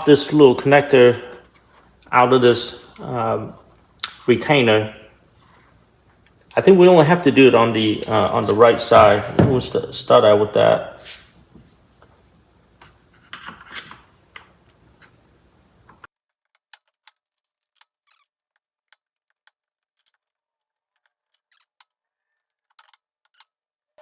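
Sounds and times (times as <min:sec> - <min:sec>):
screwdriver clicking on plastic: 0:21.0 - 0:23.5.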